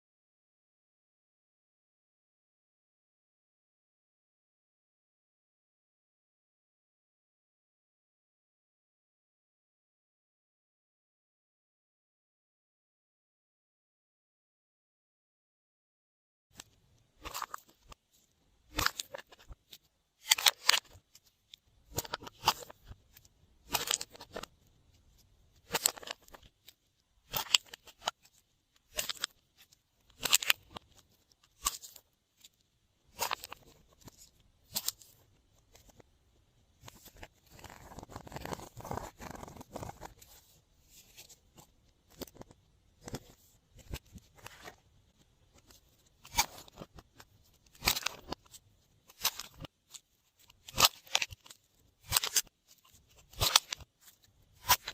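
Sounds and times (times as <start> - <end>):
slime squishing: 18.7 - 32.5.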